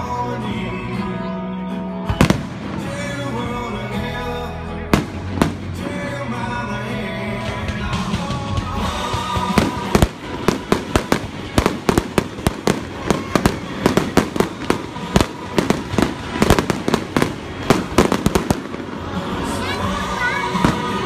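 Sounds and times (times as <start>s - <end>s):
fireworks bursting: 2.1s - 3.5s, 4.9s - 6.4s, 7.4s - 21.0s.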